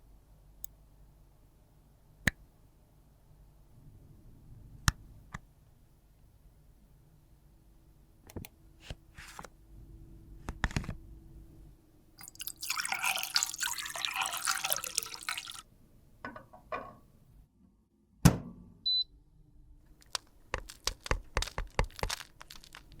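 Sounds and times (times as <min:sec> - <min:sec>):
dense crackling liquid noise: 0:19.9 - 0:23.0
small clicks and taps: 0:20.0 - 0:23.0.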